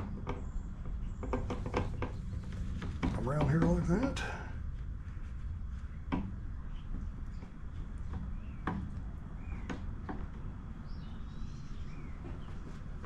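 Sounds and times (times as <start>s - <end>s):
low steady hum: 0.0s - 13.0s
bird chirping: 6.6s - 13.0s.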